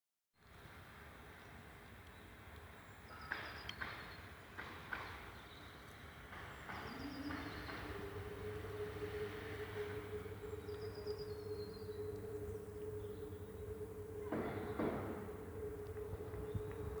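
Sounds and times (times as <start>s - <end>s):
low steady hum: 6.7s - 17.0s.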